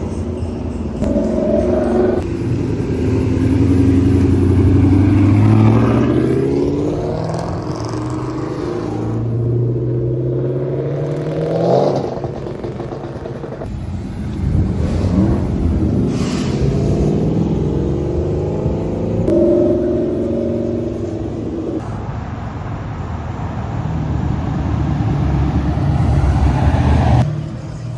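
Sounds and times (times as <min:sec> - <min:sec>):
car engine revving: 0:00.0 - 0:21.9.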